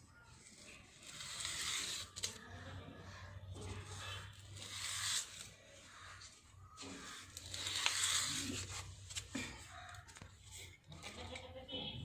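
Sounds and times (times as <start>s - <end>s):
comb scraping through hair: 0.4s - 2.4s, 3.7s - 6.1s, 6.8s - 8.9s.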